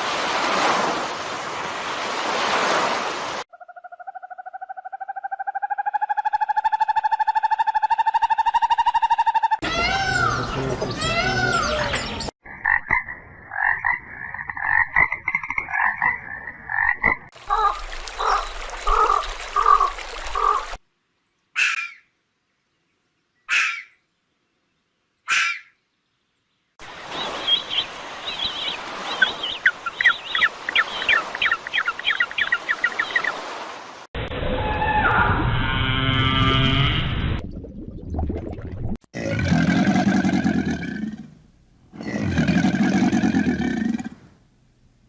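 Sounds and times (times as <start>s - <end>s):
frogs croaking: 12.4s - 20.6s.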